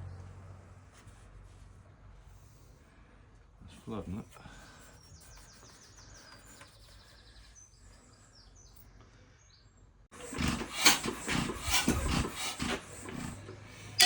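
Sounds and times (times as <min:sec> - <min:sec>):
birds chirping faintly: 0:03.7 - 0:10.1.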